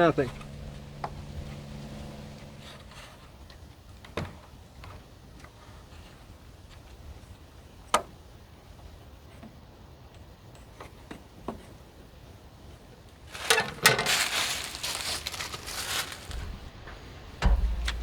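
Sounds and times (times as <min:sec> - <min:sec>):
wood scraping and rustling: 0:13.2 - 0:18.0.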